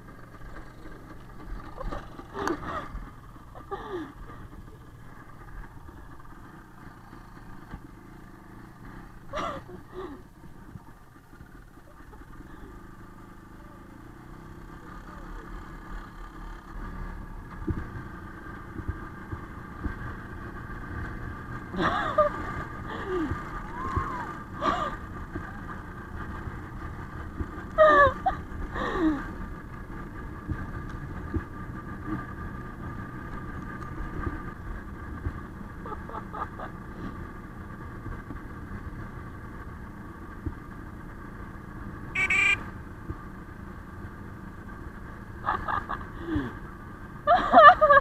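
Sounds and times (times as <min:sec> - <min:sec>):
motorcycle engine running: 0:00.0 - 0:48.0
short high-pitched sounds: 0:42.2 - 0:42.6.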